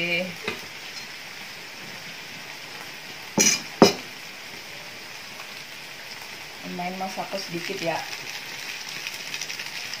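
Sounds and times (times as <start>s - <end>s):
noodles sizzling in a wok: 0.0s - 10.0s
sharp knocks: 3.4s - 4.1s.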